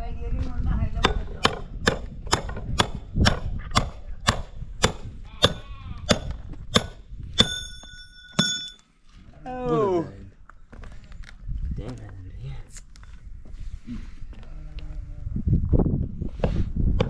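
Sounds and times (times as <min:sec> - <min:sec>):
sheep or goats bleating: 0:05.3 - 0:06.2
metallic ring: 0:07.4 - 0:08.9.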